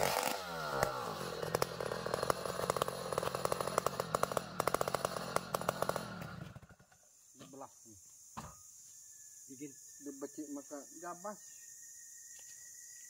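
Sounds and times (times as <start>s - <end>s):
saw engine running: 0.0s - 6.7s.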